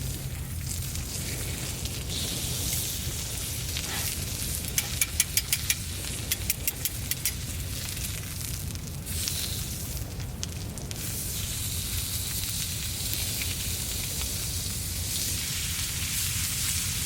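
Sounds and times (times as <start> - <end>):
steady low rumble: 0.0 - 17.0
wood fire crackling: 0.0 - 17.0
sharp pops: 4.6 - 7.5.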